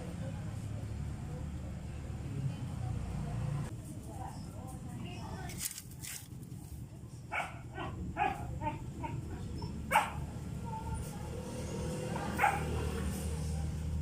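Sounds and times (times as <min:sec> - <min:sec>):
dog barking: 0:07.3 - 0:08.5, 0:09.9 - 0:10.3, 0:12.3 - 0:13.0.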